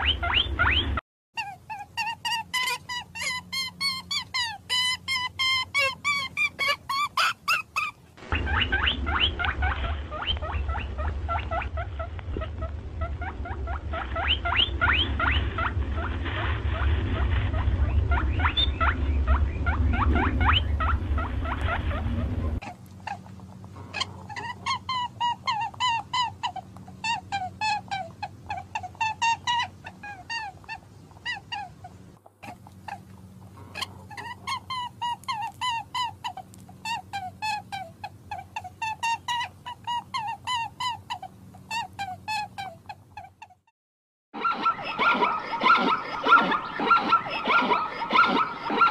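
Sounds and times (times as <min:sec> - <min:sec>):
low rumble: 0:00.0 - 0:01.0, 0:08.2 - 0:27.4
animal chirps: 0:00.0 - 0:16.1, 0:16.7 - 0:43.6, 0:44.4 - 0:48.9
rhythmic repeated animal calls: 0:00.0 - 0:42.4, 0:44.4 - 0:48.9.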